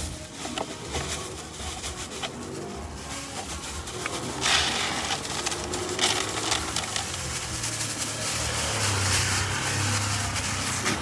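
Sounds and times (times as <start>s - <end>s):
broad rushing street noise: 0.0s - 11.0s
car engine hum approaching: 5.0s - 11.0s.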